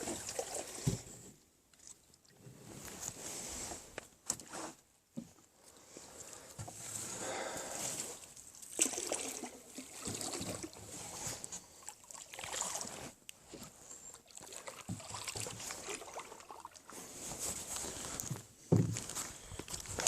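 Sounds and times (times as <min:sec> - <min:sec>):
water sloshing against boat: 0:07.9 - 0:17.7.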